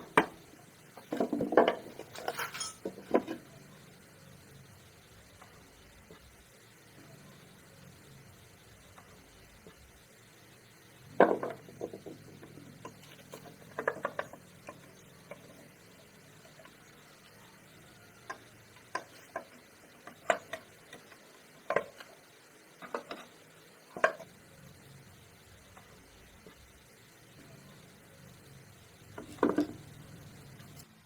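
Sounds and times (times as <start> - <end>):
tools and metal parts clinking: 1.0 - 3.4.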